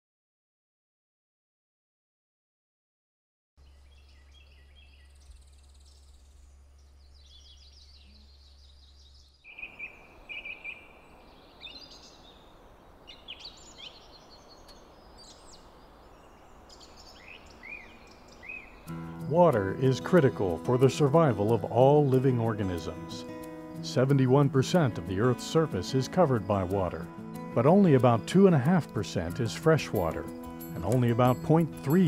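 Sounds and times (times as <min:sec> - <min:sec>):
low hum: 0:03.6 - 0:09.4
small birds chirping: 0:03.6 - 0:32.0.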